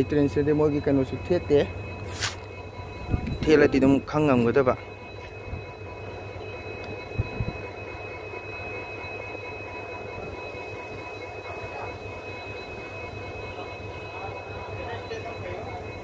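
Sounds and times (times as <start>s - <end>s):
high-pitched whining tones: 0.0s - 16.0s
train low rumble: 0.0s - 16.0s.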